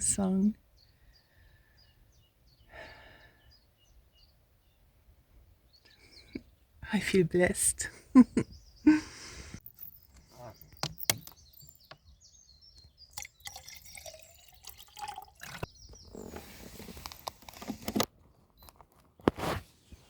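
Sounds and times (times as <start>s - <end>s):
birds chirping: 0.0s - 18.7s
small clicks and knocks: 9.7s - 12.0s
water running and dripping: 13.2s - 15.7s.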